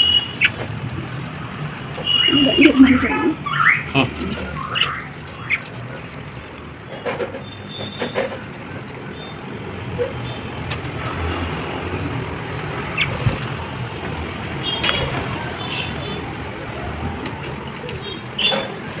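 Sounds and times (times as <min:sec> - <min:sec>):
lovebird high chirps: 0:02.1 - 0:05.6.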